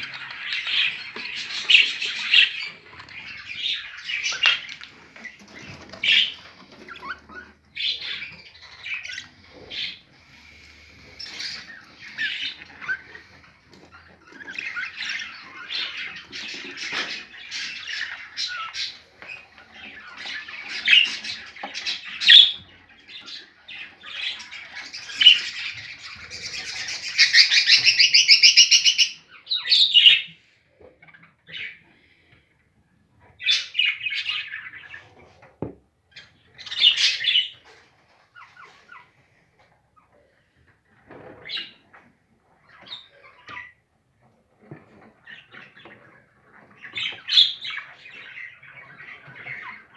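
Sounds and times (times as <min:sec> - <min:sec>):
budgies chirping and chattering: 0:00.0 - 0:49.9.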